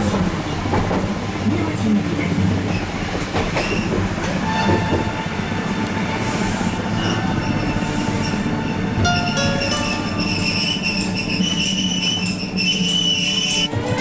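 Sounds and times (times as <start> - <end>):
train wheels rumbling on rail: 0.0 - 14.0
wheel squeal: 6.9 - 13.7.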